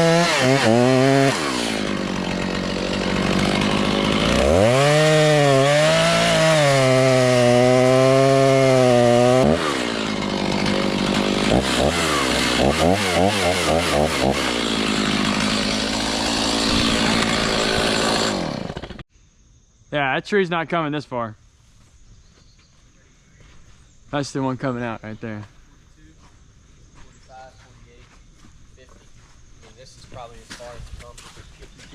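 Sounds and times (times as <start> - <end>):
chainsaw revving: 0.0 - 19.0.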